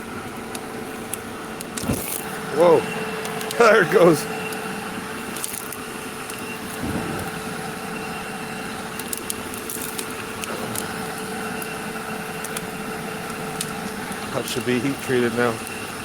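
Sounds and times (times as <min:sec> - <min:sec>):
burning wood crackling: 0:00.0 - 0:16.0
forge rushing hum: 0:00.0 - 0:16.0.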